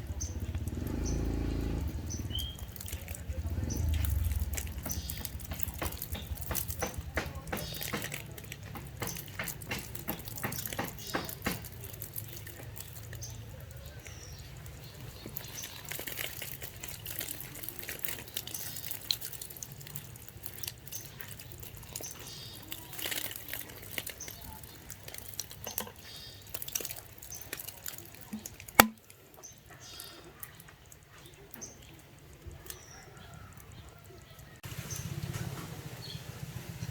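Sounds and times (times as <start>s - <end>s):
water splashing and dripping: 0.0s - 36.9s
sharp click: 28.8s - 29.0s.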